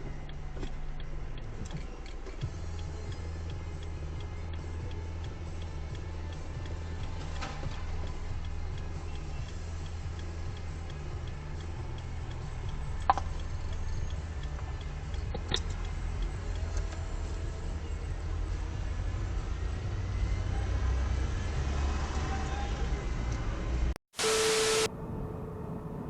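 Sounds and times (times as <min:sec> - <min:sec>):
light ticking: 0:00.0 - 0:20.3
vehicle engine rumble: 0:00.0 - 0:26.0.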